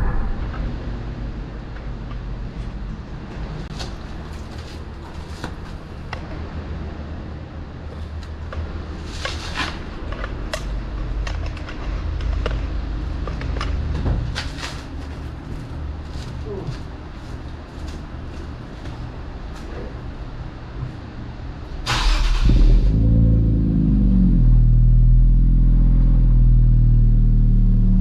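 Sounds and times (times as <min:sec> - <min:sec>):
car exhaust drone: 0:20.4 - 0:28.0.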